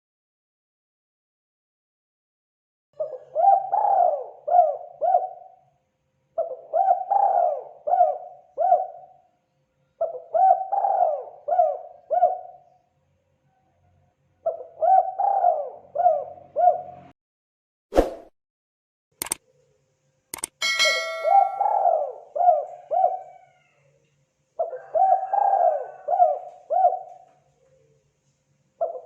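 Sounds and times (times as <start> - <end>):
dove cooing: 3.0 - 5.6, 6.4 - 9.2, 10.0 - 12.7, 14.4 - 17.0, 20.6 - 23.8, 24.6 - 27.8, 28.8 - 29.0.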